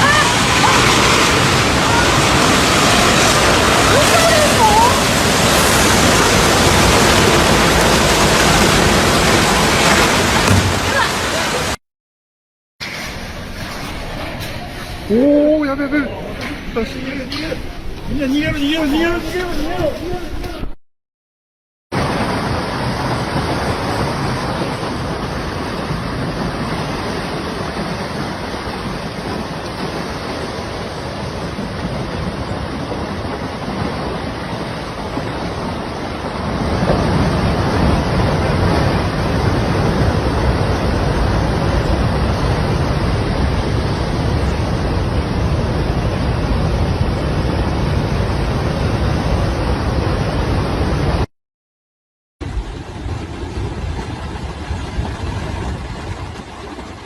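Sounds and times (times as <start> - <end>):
mudslide rushing: 0.0 - 11.8, 12.8 - 20.6, 21.9 - 51.3, 52.4 - 57.0.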